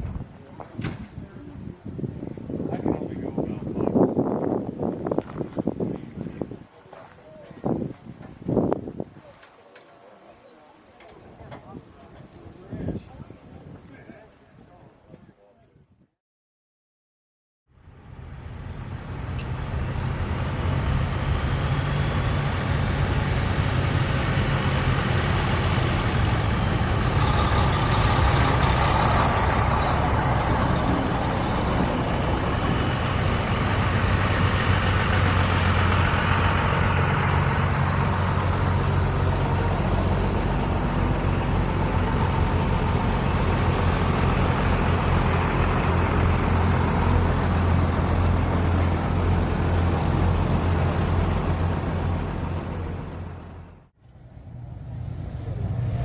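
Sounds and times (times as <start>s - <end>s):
truck engine running: 17.8s - 56.0s.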